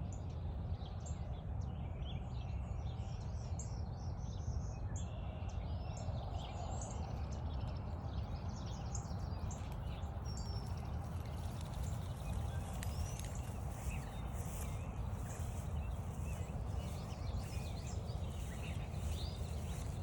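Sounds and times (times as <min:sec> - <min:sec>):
songbirds chirping: 0:00.1 - 0:20.0
steady low rumble: 0:07.8 - 0:20.0.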